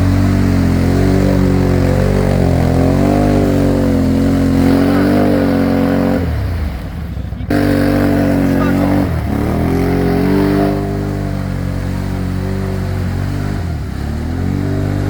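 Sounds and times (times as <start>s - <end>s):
atv engine revving: 0.0s - 15.0s.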